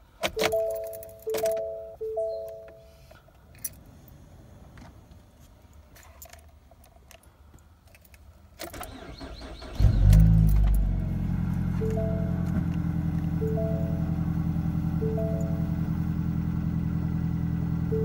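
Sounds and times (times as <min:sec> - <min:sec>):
car engine cranking and starting: 0:08.6 - 0:18.0
car engine idling: 0:08.9 - 0:18.0.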